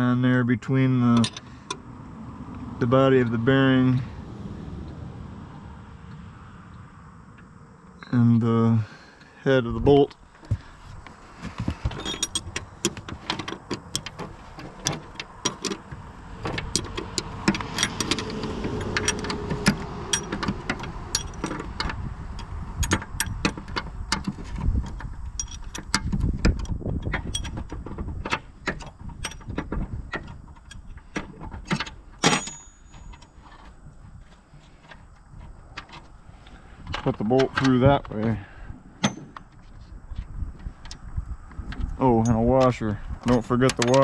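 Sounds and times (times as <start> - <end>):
tools clinking on metal: 11.9 - 14.2, 32.2 - 33.6.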